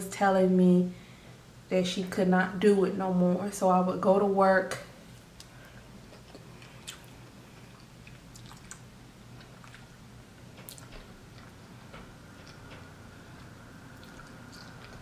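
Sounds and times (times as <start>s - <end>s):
person chewing food: 5.4s - 15.0s.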